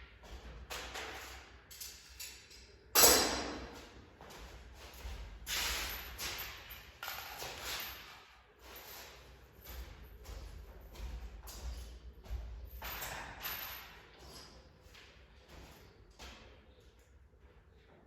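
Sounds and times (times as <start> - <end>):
knocks and clatters of tools: 6.0 - 8.8, 9.6 - 14.5.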